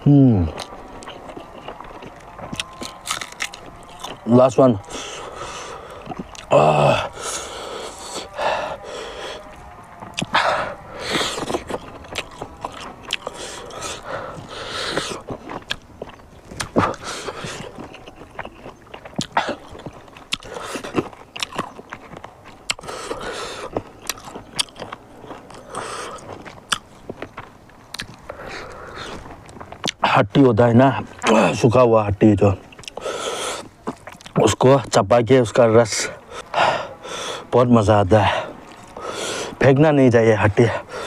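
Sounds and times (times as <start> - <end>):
chewing and crunching bones: 0.0 - 41.0
wet mouth clicks: 11.2 - 21.8.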